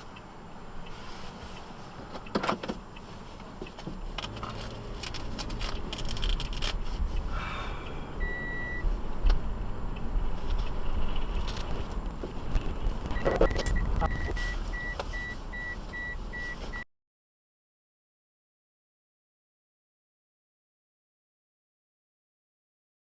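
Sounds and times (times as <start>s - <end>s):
car engine and road rumble: 0.0s - 16.9s
short beep: 8.2s - 8.9s, 13.1s - 16.9s.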